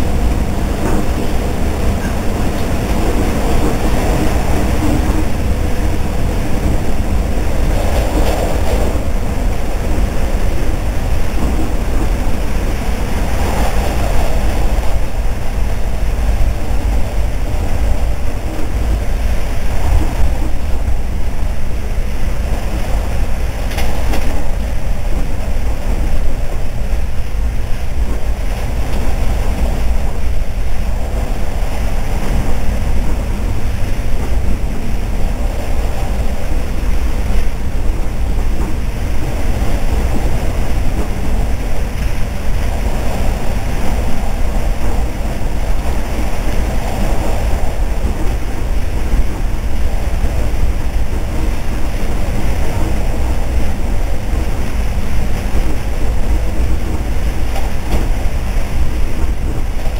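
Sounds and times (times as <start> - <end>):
rushing noise: 0.0 - 59.9
train wheels rumbling: 0.0 - 59.9.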